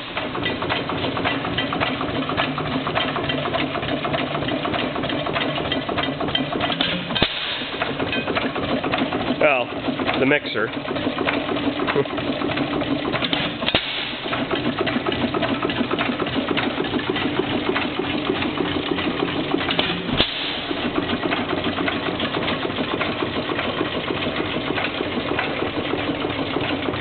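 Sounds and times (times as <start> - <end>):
gas engine clattering: 0.0 - 27.0.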